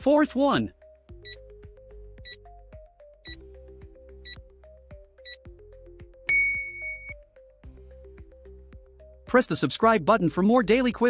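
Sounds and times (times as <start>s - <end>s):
soft background music: 0.0s - 11.0s
bell-like ding: 6.3s - 7.2s
high tick-chime: 6.3s - 7.2s.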